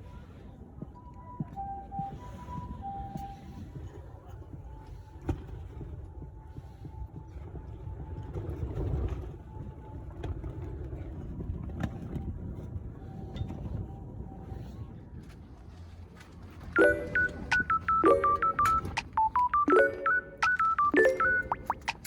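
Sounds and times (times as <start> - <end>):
wind buffeting microphone: 0.0 - 15.6.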